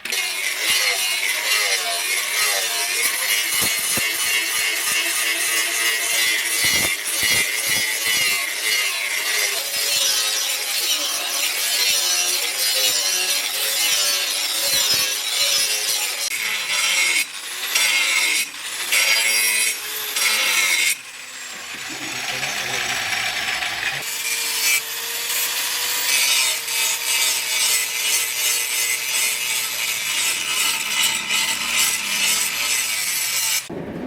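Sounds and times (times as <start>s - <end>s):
hand tool scraping wood: 0.7s - 5.8s.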